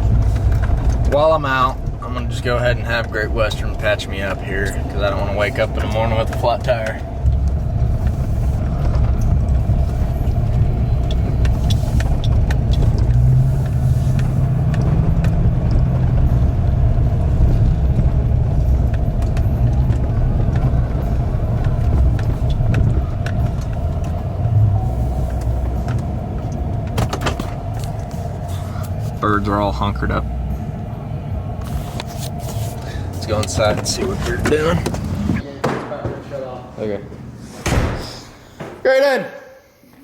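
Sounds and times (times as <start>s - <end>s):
faint clicks and rattles: 0.0s - 30.7s
truck engine and road rumble: 0.0s - 35.6s.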